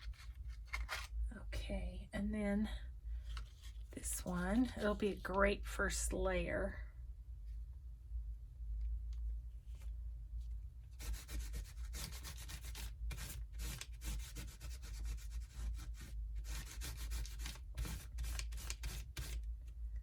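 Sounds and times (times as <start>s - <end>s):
paper scrubbing on a surface: 11.0s - 19.4s.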